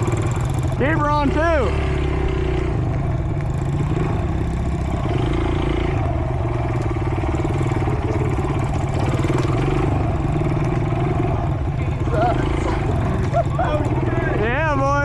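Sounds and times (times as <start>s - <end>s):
pit bike engine running: 0.0s - 15.0s.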